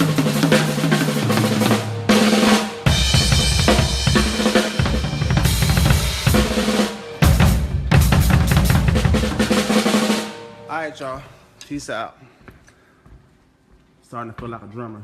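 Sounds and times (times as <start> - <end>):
drum kit played hard: 0.0 - 10.7.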